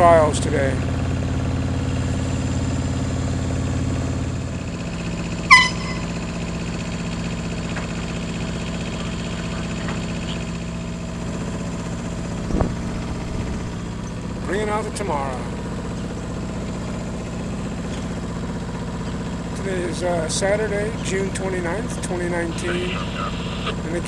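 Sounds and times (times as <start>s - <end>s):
boat engine running: 0.0s - 24.0s
short high chirp: 5.5s - 6.3s.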